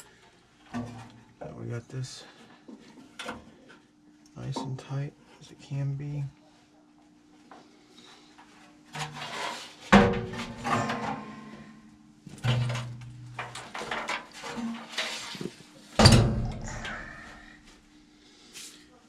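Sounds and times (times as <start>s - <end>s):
metal parts knocking and clattering: 12.3s - 15.4s, 16.0s - 17.2s.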